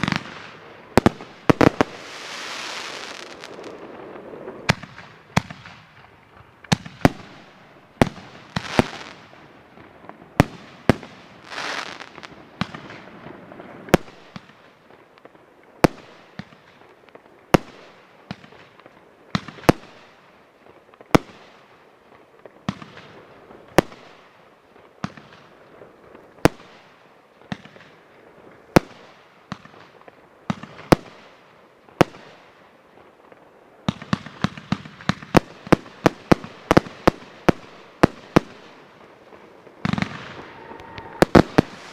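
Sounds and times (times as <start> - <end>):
firework bangs: 0.0 - 15.0, 33.8 - 41.9
firework hissing rush: 1.6 - 4.6, 11.4 - 12.3, 40.4 - 41.9.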